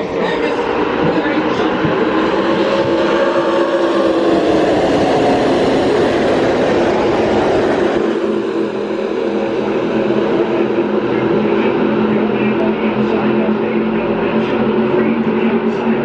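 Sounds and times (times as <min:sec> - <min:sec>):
racing truck engines at full throttle: 0:00.0 - 0:16.0.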